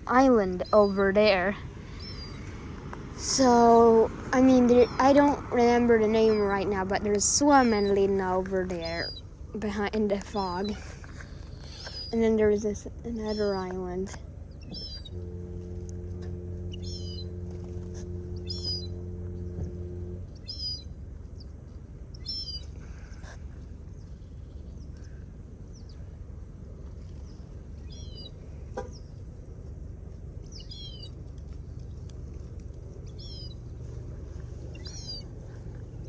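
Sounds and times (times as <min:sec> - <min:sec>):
songbird chirping: 0:00.0 - 0:36.0
steady low hum: 0:00.0 - 0:36.0.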